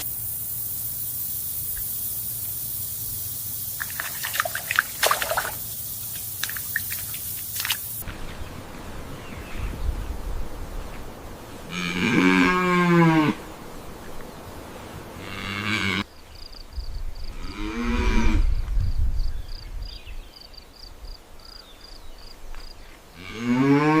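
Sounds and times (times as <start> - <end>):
cattle mooing: 11.7 - 13.4.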